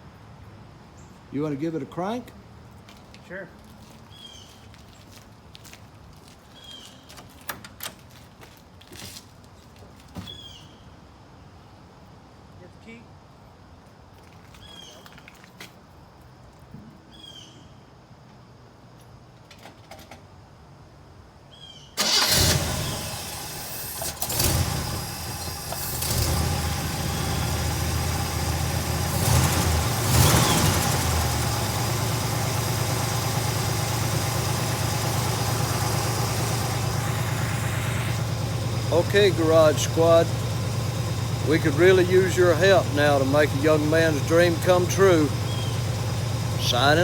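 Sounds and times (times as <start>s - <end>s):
car engine starting and idling: 22.0s - 47.0s.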